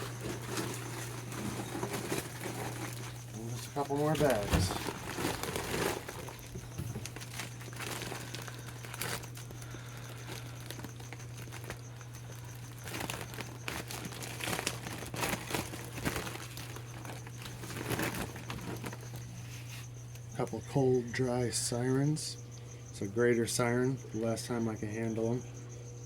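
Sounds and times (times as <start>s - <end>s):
plastic bags crinkling: 0.0s - 19.8s
steady low hum: 0.0s - 26.0s.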